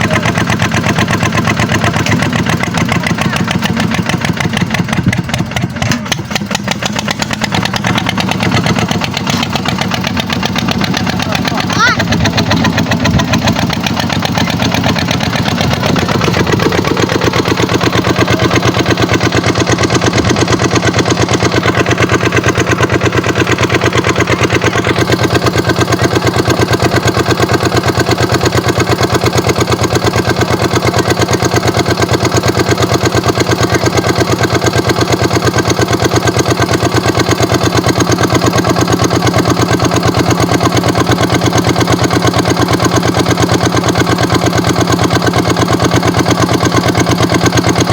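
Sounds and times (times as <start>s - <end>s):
diesel tractor engine running: 0.0s - 47.9s.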